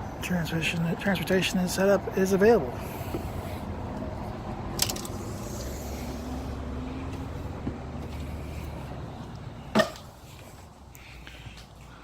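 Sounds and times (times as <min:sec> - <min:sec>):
vehicle engine running: 0:02.8 - 0:10.8.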